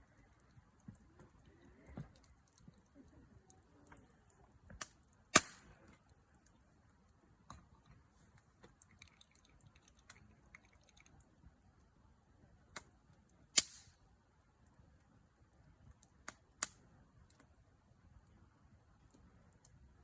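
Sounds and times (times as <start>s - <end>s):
campfire wood crackling: 0.0s - 20.0s
sharp pops with hiss: 4.8s - 5.7s, 13.6s - 14.0s.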